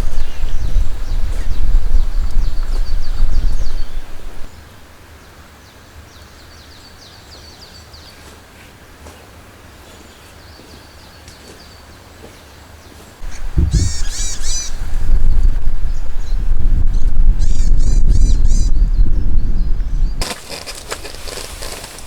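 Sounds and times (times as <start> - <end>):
small birds chirping: 0.0 - 4.8, 5.7 - 22.0
loud bird calling: 13.2 - 16.3
loud low rumble: 13.2 - 20.2.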